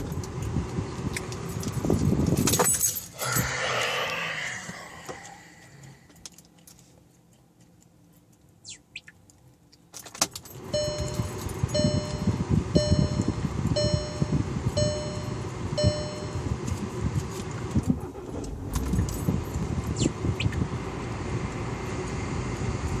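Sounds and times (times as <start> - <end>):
diesel engine running: 10.5 - 23.0
car warning chime dinging: 10.6 - 16.8.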